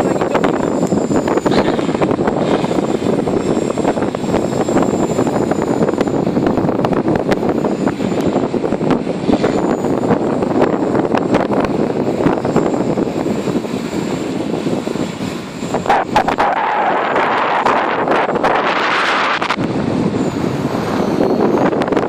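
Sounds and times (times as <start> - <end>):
rc helicopter rotor whirr: 0.0 - 22.0
wind on microphone: 0.0 - 22.0.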